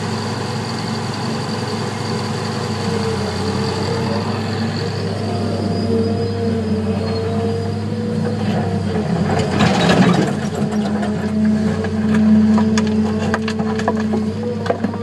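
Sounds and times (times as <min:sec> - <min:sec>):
heavy diesel engines running: 0:00.0 - 0:15.0
rock and dirt rushing: 0:03.0 - 0:15.0
rocks clattering: 0:09.3 - 0:15.0.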